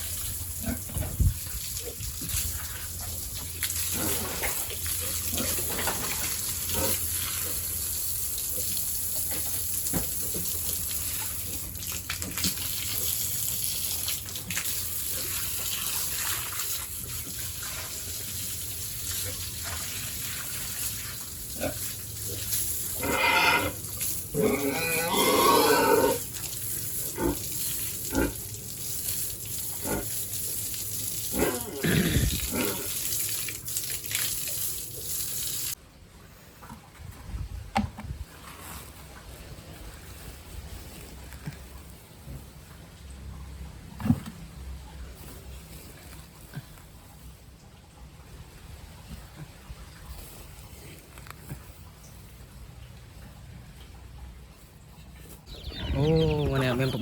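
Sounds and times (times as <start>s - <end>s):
pigs grunting and squealing: 3.8s - 7.7s, 21.5s - 26.4s, 27.0s - 28.5s, 29.8s - 30.2s, 31.2s - 33.0s, 55.7s - 57.0s.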